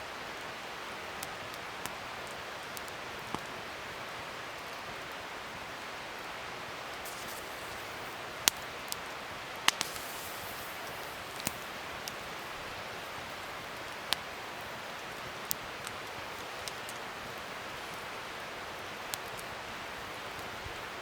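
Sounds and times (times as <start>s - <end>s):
wood fire hissing: 6.1s - 21.0s
fire crackling pops: 6.8s - 21.0s.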